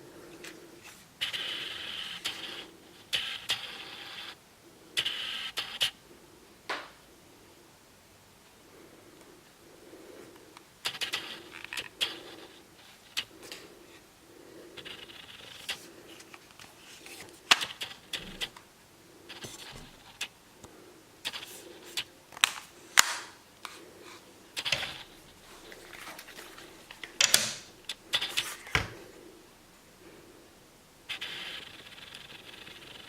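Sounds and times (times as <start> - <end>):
scraping and rustling: 23.6 - 29.2
airsoft rifle clicks and knocks: 27.0 - 27.7.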